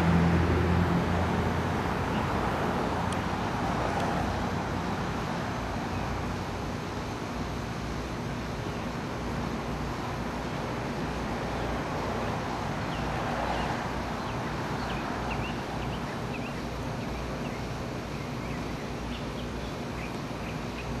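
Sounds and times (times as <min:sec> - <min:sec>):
small birds chirping: 0:12.8 - 0:21.0.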